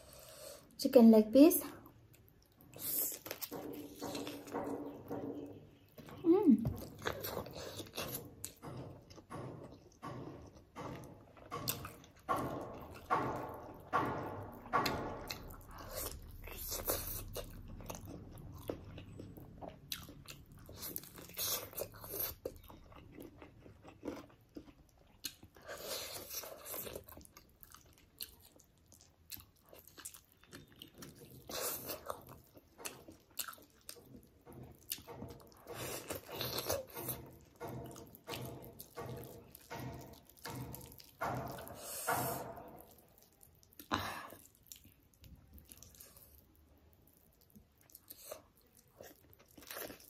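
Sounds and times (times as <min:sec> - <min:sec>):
crunchy biting and chewing: 0:06.8 - 0:10.6, 0:14.8 - 0:46.5, 0:47.4 - 0:50.0.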